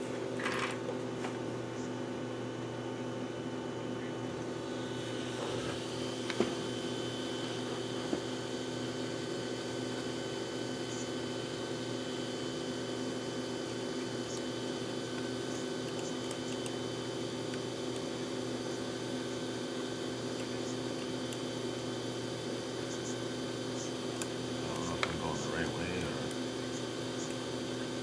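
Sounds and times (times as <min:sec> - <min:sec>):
steady hum: 0:24.1 - 0:27.4.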